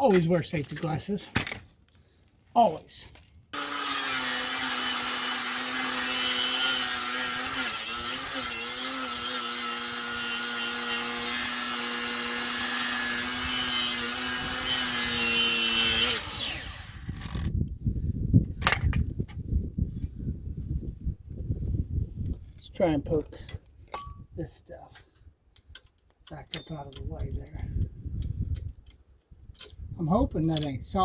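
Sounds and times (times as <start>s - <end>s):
angle grinder cutting metal: 3.6s - 17.5s.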